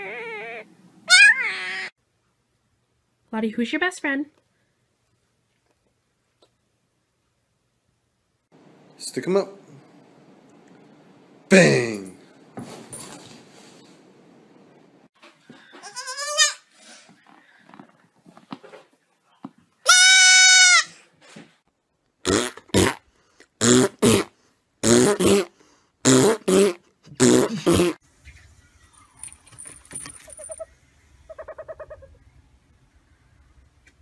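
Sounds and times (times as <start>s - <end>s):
baby goat bleating: 0.0s - 1.9s, 15.8s - 16.6s, 19.9s - 20.9s.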